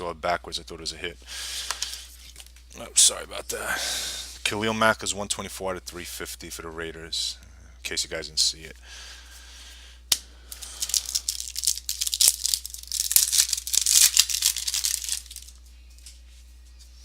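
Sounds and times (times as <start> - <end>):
foil wrapper tearing and crinkling: 10.6 - 15.6.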